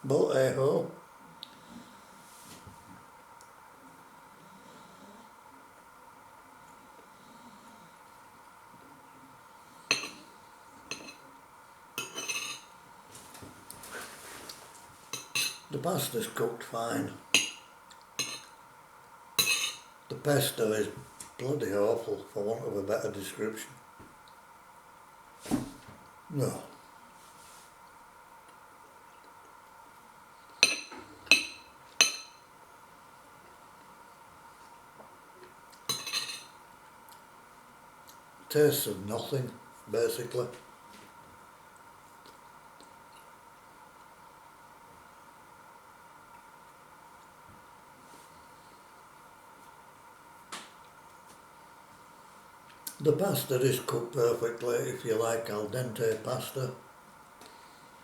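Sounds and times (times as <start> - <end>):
faint steady hum: 0.0 - 58.0
cutlery clinking on a dish: 9.9 - 10.2, 10.9 - 11.2, 12.0 - 12.7, 15.2 - 15.7, 17.4 - 18.5, 19.4 - 19.9, 30.6 - 32.4, 35.9 - 36.6.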